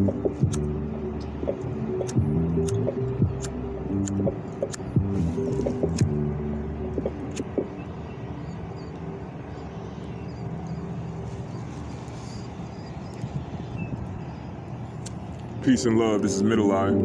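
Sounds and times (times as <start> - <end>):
music: 0.0 - 9.9, 15.7 - 17.0
low rumble of vehicle noise: 0.0 - 17.0.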